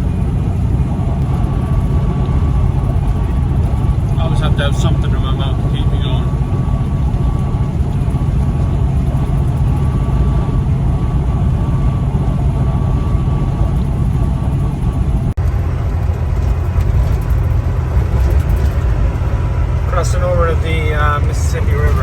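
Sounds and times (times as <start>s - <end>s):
faint steady whine: 0.0s - 15.4s
truck engine and road noise: 0.0s - 22.0s.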